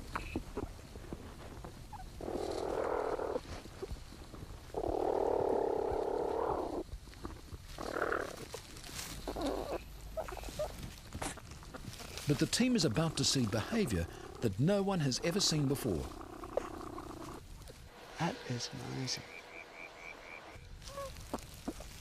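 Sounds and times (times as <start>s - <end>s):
platypus croaky buzzing bursts: 18.0s - 20.7s.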